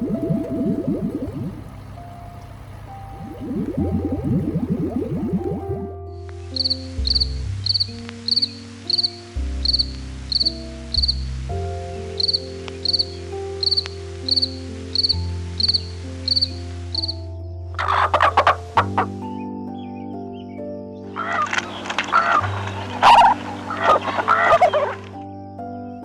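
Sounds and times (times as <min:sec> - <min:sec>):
background music: 0:00.0 - 0:26.0
cricket chirping: 0:06.5 - 0:11.2, 0:12.1 - 0:17.2.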